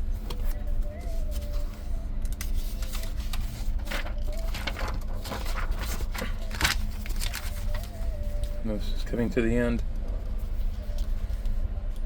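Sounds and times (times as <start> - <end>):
steady low rumble: 0.0 - 12.0
paper rustling and crackling: 0.2 - 8.5.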